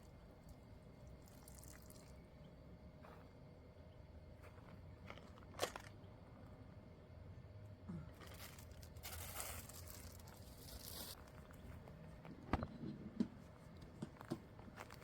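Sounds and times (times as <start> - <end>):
dry rustling and crinkling: 8.0 - 12.2.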